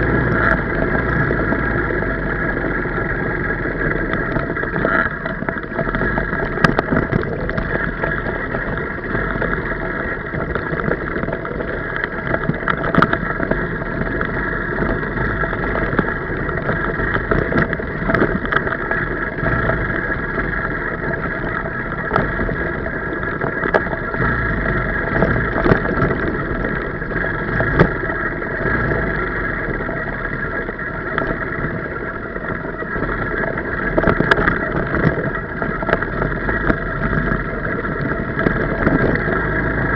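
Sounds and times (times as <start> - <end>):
motorbike engine running: 0.0 - 39.9.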